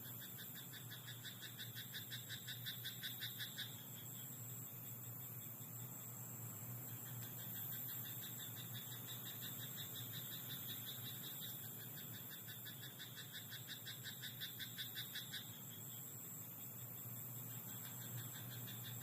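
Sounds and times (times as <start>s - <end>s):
steady high hiss: 0.0s - 19.0s
frog croaking: 0.1s - 4.3s, 6.9s - 15.8s, 17.6s - 19.0s.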